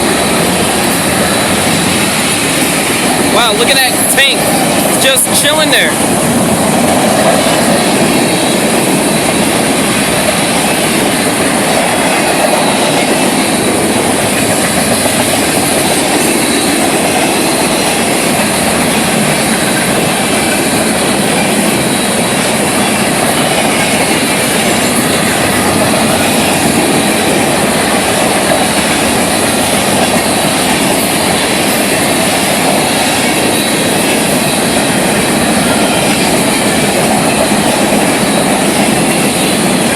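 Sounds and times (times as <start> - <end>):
train wheels rolling on rails: 0.0 - 39.9.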